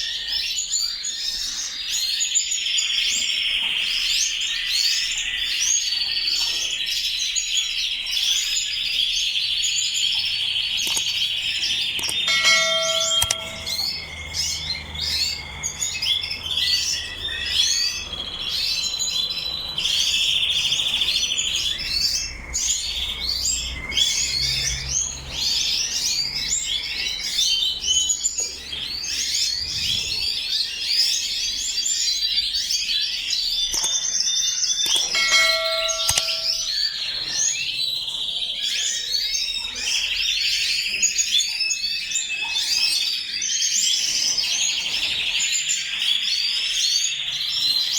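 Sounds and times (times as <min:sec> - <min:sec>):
canaries chirping and singing: 0:00.0 - 0:47.9
short chime tone: 0:12.3 - 0:14.1, 0:35.0 - 0:36.8.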